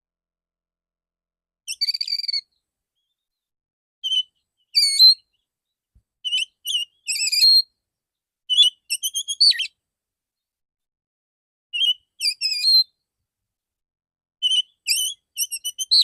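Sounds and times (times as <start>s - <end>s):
bird singing whistled phrases: 1.7s - 3.2s, 4.0s - 5.3s, 6.2s - 7.7s, 8.5s - 9.8s, 11.8s - 12.9s, 14.4s - 16.0s.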